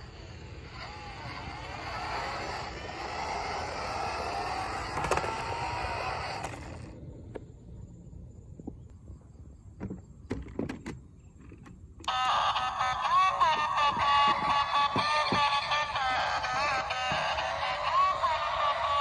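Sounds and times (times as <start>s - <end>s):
small electric motor whirring: 0.0s - 7.0s, 12.1s - 19.0s.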